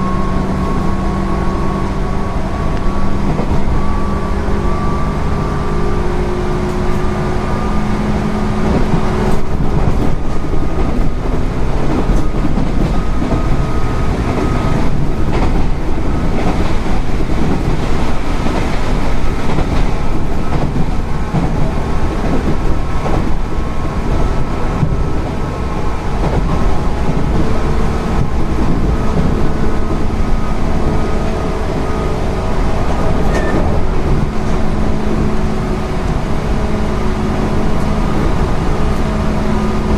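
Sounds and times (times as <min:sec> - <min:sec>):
train motor hum: 0:00.0 - 0:39.9
train wheel and rail rumble: 0:00.0 - 0:39.9
clacks over rail joints: 0:08.6 - 0:25.4, 0:26.1 - 0:30.2, 0:32.8 - 0:34.6.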